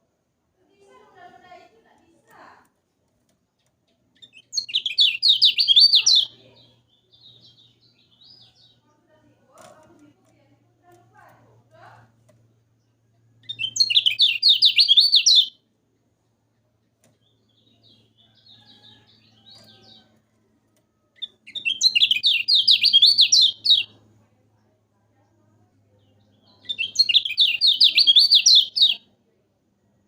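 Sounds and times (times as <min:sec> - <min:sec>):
bird singing rapid chattering notes: 0:03.6 - 0:08.8, 0:12.8 - 0:15.6, 0:21.2 - 0:23.9, 0:26.1 - 0:29.0
faint low hum: 0:15.0 - 0:27.1.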